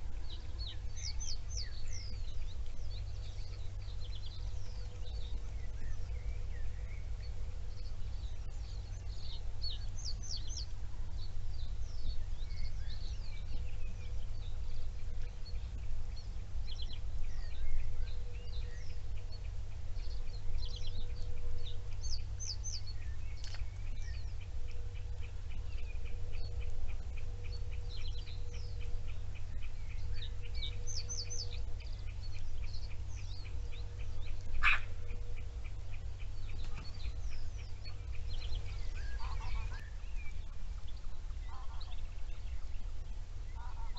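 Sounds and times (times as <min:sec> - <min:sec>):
low rumble: 0:00.0 - 0:43.9
songbirds chirping: 0:00.0 - 0:43.9
fast ticking bird notes: 0:12.4 - 0:42.4.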